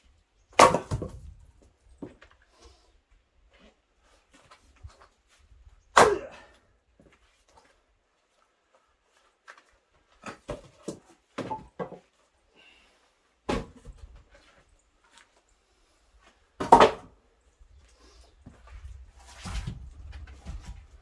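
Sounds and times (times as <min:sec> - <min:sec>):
axe chopping firewood: 0:00.6 - 0:01.3, 0:06.0 - 0:06.6, 0:13.5 - 0:13.9, 0:16.6 - 0:17.1.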